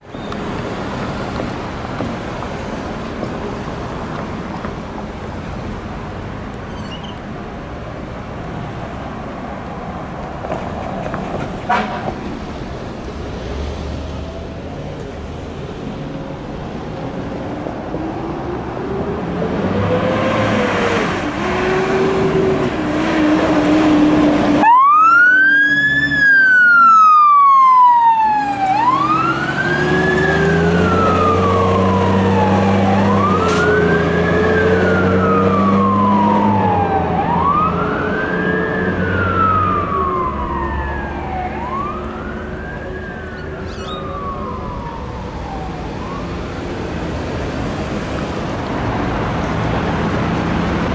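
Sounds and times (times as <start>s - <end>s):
low winding siren: 21.7s - 46.8s
electronic wail siren: 24.6s - 46.7s.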